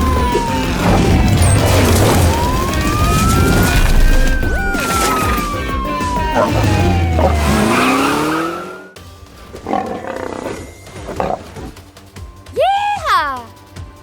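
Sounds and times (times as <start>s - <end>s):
cartoon siren gliding down: 0.0s - 9.0s
background music: 0.0s - 14.0s.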